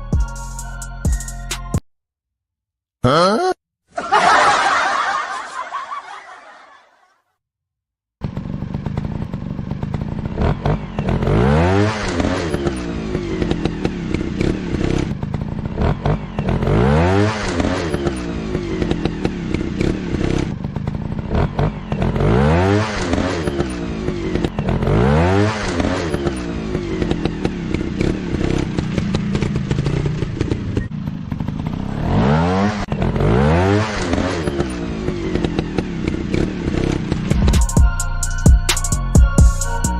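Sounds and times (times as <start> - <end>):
dirt bike engine revving: 8.2 - 37.7.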